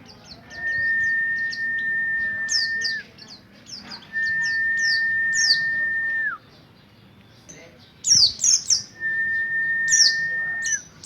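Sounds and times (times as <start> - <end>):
bird chirping: 0.0 - 11.0
long level whistle: 4.2 - 6.4, 9.0 - 10.8.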